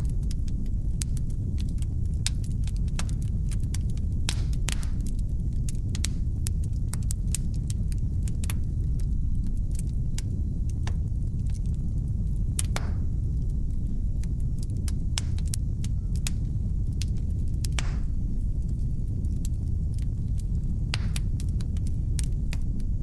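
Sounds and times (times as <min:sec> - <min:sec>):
fire pops and snaps: 0:00.0 - 0:23.0
low rumble of burning: 0:00.0 - 0:23.0.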